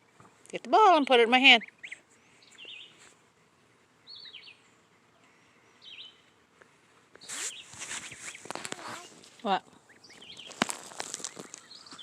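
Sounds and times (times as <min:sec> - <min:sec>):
quiet outdoor background noise: 0:00.0 - 0:12.0
goslings peeping: 0:00.9 - 0:03.1, 0:04.0 - 0:04.7, 0:07.2 - 0:12.0.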